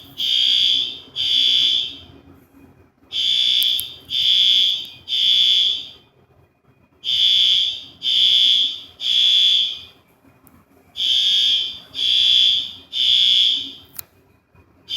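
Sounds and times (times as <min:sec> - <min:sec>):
fire alarm beeping: 0:00.0 - 0:02.2, 0:03.1 - 0:06.0, 0:07.0 - 0:10.0, 0:11.0 - 0:14.0.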